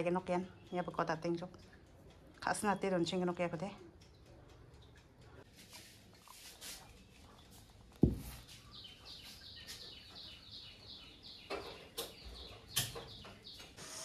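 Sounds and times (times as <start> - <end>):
small bird chirping: 8.4 - 13.8.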